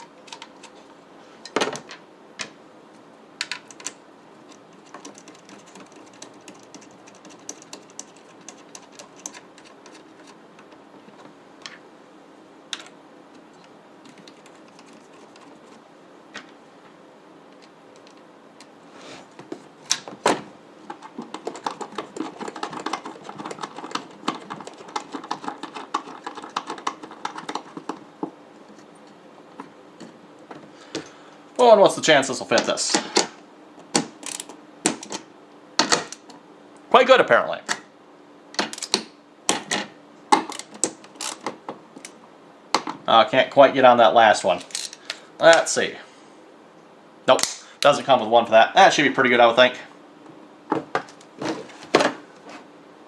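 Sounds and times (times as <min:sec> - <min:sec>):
rapid clicking: 0:03.4 - 0:10.8, 0:20.8 - 0:28.3.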